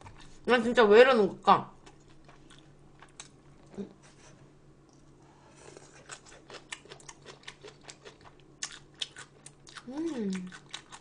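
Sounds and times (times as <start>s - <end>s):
chewing with small crunches: 1.8s - 3.8s, 4.8s - 11.0s.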